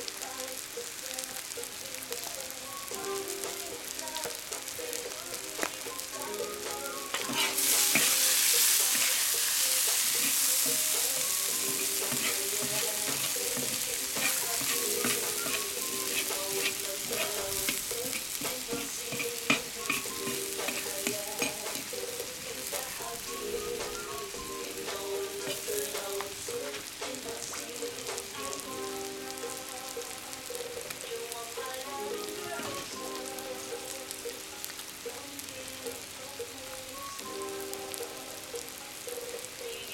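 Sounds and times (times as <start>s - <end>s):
meat sizzling in hot oil: 0.0s - 39.9s.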